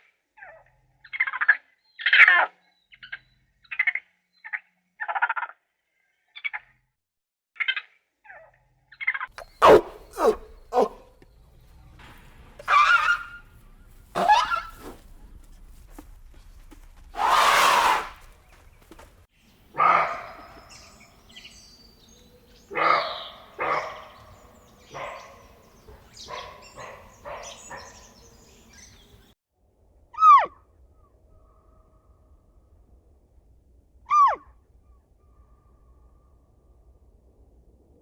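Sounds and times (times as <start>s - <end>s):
clear falling animal call: 9.4s - 11.1s, 12.6s - 13.4s, 14.2s - 15.0s, 17.2s - 18.2s
harsh animal call: 9.4s - 11.1s, 12.6s - 13.4s, 14.2s - 14.9s, 17.2s - 18.2s, 19.8s - 21.0s, 22.7s - 28.0s
short animal calls: 9.4s - 11.1s, 12.6s - 13.4s, 14.2s - 14.9s, 17.2s - 18.2s.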